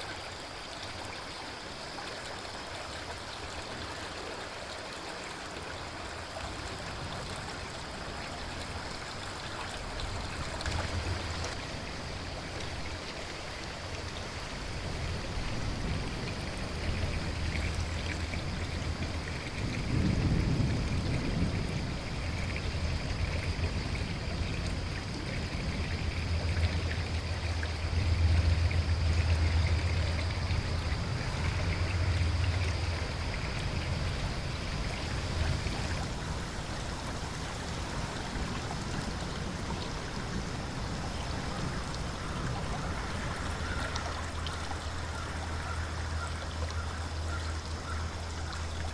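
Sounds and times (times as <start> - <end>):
rain falling: 0.0 - 48.9
river flowing: 0.0 - 48.9
low rolling thunder: 14.9 - 45.6.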